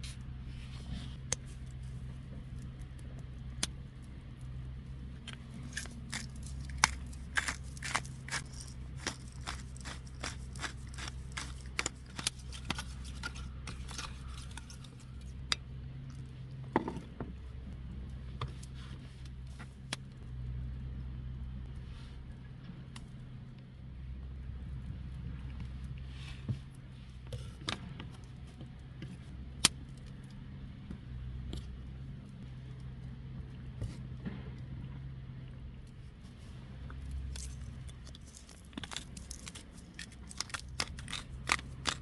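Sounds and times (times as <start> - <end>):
steady low hum: 0.0 - 42.0
cooking clicks and scrapes: 5.2 - 15.5, 37.2 - 42.0.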